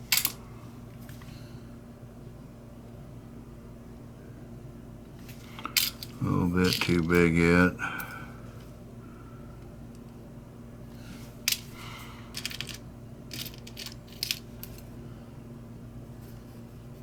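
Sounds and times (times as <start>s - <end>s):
metal parts clicking together: 0.0s - 0.4s, 5.5s - 7.3s, 11.5s - 11.7s, 12.3s - 14.9s.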